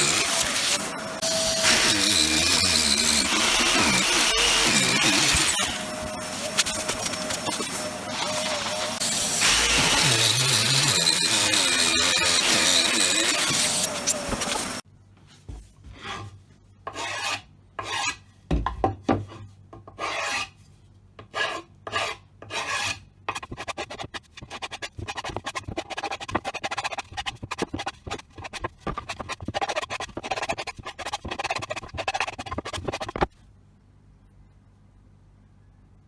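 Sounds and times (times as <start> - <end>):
rasping filing strokes: 0.0 - 14.8, 16.9 - 18.2, 20.0 - 20.6, 21.3 - 33.3.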